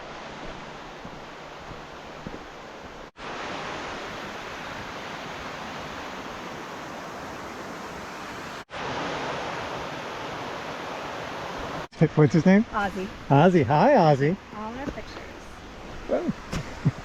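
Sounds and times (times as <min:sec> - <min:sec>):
waterfall roar: 0:12.8 - 0:16.9.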